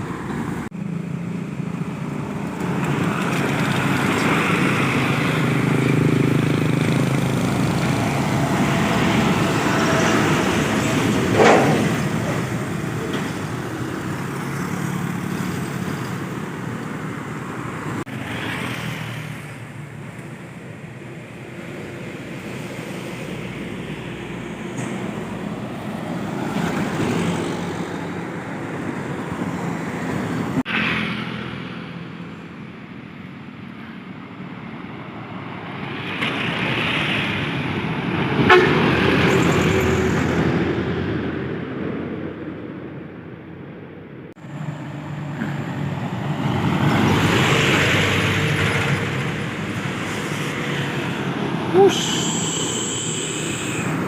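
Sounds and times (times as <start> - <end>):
road traffic with trucks: 0.0 - 54.0
vehicle horn: 38.5 - 38.8.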